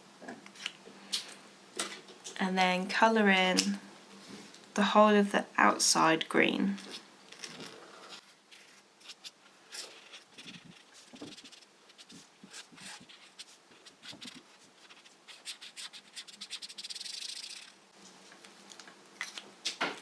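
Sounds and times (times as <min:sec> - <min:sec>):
pencil scribbling on paper: 0:09.8 - 0:17.7.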